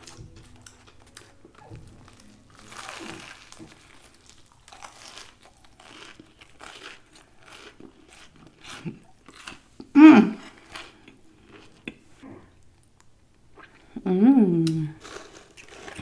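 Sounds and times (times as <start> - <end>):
paper wrapping crinkling: 0.0 - 7.5.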